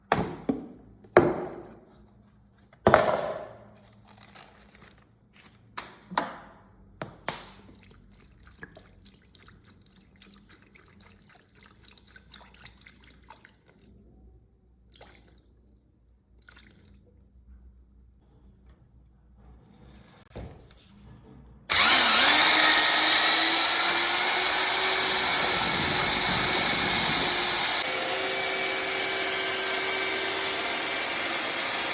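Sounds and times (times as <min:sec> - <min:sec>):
crackly wet sounds: 0:07.4 - 0:17.5.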